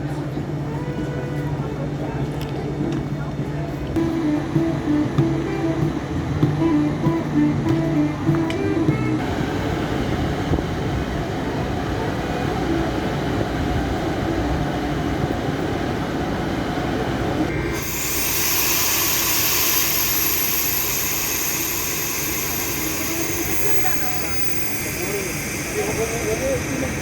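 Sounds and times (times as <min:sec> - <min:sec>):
train rumbling on rails: 0:00.0 - 0:27.0
loud high hiss: 0:04.0 - 0:09.8, 0:17.5 - 0:27.0.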